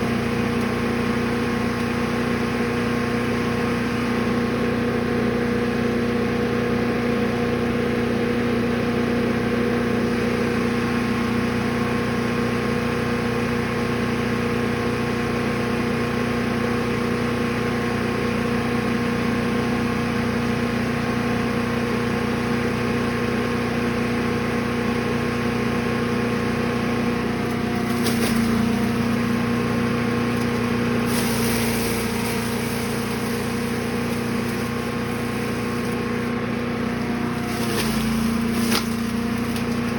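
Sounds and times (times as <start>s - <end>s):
wood chipper engine running: 0.0s - 39.9s
brief jolt: 37.2s - 39.9s.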